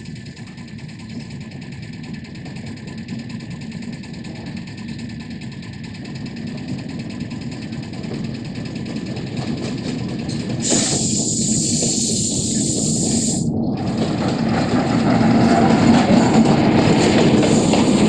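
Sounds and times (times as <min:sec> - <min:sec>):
diesel locomotive engine rumbling: 0:00.0 - 0:18.0
loud hiss: 0:10.6 - 0:13.5, 0:17.4 - 0:18.0.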